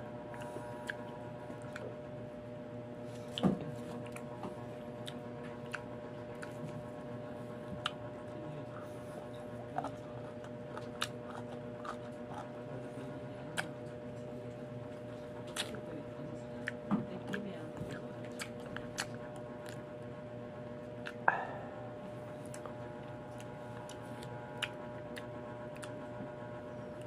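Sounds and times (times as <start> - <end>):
background hum: 0.0 - 27.0
crunching unripe mango: 9.4 - 14.2, 14.9 - 15.9, 16.6 - 20.1, 22.4 - 26.2
wet mouth clicks: 21.0 - 21.6, 22.4 - 26.0.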